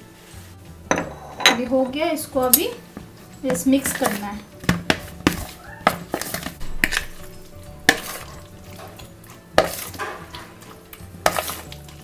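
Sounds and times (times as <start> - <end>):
spoon scraping and knocking bowl: 0.9 - 1.9, 3.5 - 11.8.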